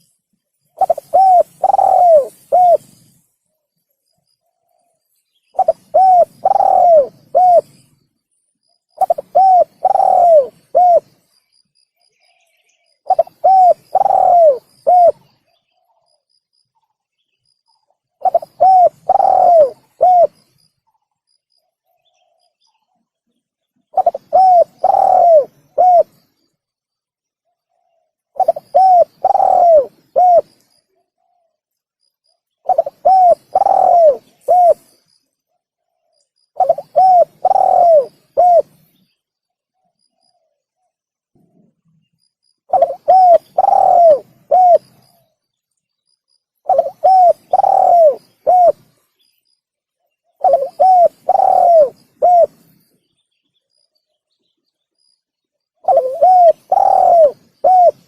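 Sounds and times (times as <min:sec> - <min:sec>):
dove cooing: 0:00.8 - 0:03.1, 0:05.6 - 0:07.9, 0:09.0 - 0:11.2, 0:13.0 - 0:15.3, 0:18.2 - 0:20.4, 0:23.9 - 0:26.2, 0:27.7 - 0:30.6, 0:32.6 - 0:35.0, 0:36.6 - 0:38.8, 0:42.7 - 0:45.2, 0:46.6 - 0:49.0, 0:50.4 - 0:52.7, 0:55.8 - 0:58.0.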